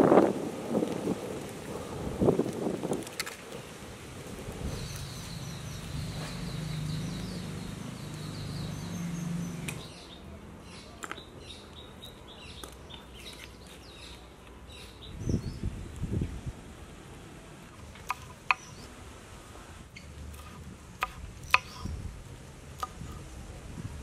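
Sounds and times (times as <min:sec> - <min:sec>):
birds chirping and calling: 0:04.6 - 0:15.6
low steady rush: 0:18.8 - 0:21.4.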